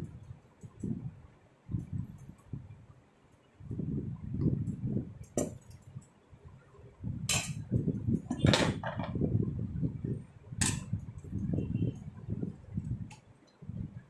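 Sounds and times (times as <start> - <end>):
kitchen utensils knocking and rubbing: 7.3 - 9.2.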